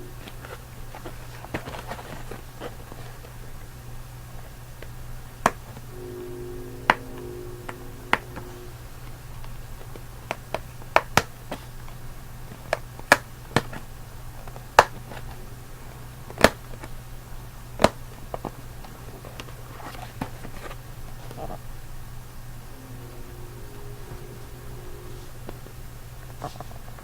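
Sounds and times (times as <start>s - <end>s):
steady low hum: 5.9s - 9.5s, 22.5s - 26.3s.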